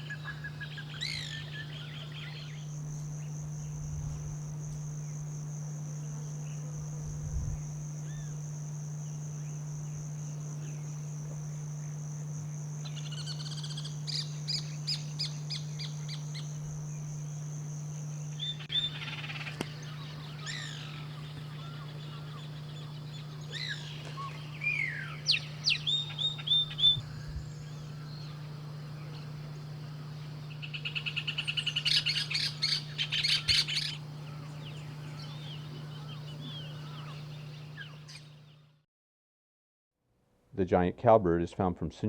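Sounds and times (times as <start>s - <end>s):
birds chirping and whistling: 0.0s - 2.7s, 12.8s - 16.6s, 18.3s - 29.4s, 30.1s - 38.6s
steady low hum: 0.0s - 38.8s
bird rattling call: 30.6s - 38.2s.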